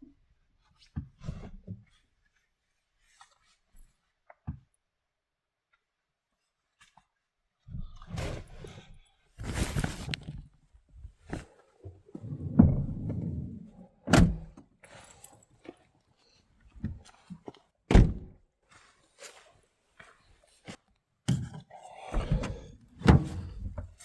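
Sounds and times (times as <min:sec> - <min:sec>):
thuds and knocks in a car: 0:14.1 - 0:14.6, 0:17.9 - 0:18.4, 0:22.2 - 0:24.0.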